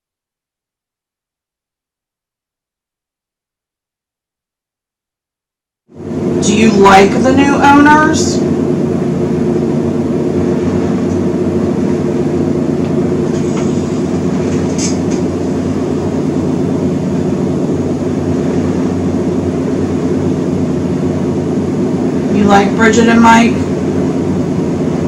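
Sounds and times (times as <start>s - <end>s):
low motor hum: 5.9s - 25.0s.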